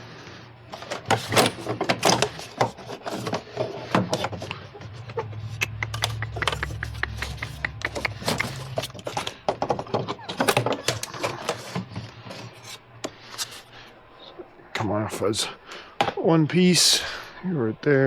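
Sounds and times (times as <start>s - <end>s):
low steady hum: 0.0s - 18.0s
plastic and metal parts clicking: 5.6s - 13.6s.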